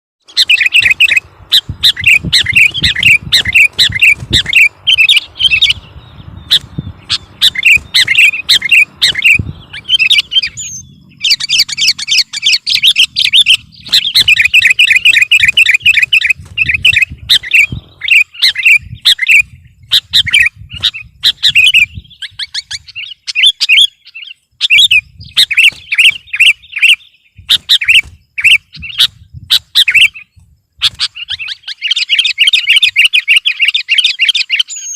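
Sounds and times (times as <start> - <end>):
bulbul singing chirped notes: 0.2 - 34.9.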